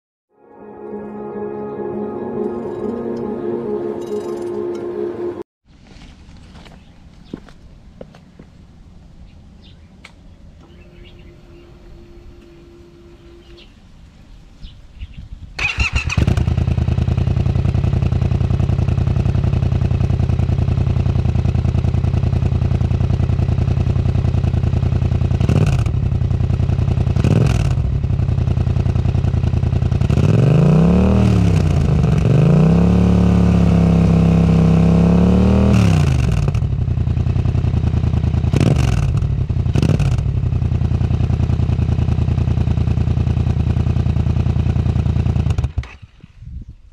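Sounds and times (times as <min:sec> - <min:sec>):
motorcycle engine revving: 0:15.6 - 0:46.1
motorcycle engine starting and idling: 0:15.6 - 0:46.4.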